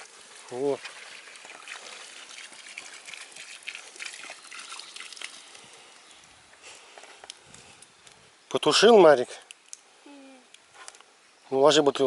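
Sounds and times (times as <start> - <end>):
water pouring on campfire: 0.0 - 8.4
embers crackling: 3.8 - 11.2.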